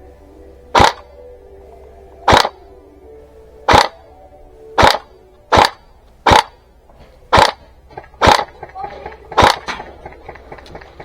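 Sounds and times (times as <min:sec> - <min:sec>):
airsoft gun shots: 0:00.7 - 0:01.1, 0:02.3 - 0:02.6, 0:03.7 - 0:04.0, 0:04.8 - 0:06.6, 0:07.3 - 0:08.7, 0:09.3 - 0:10.0.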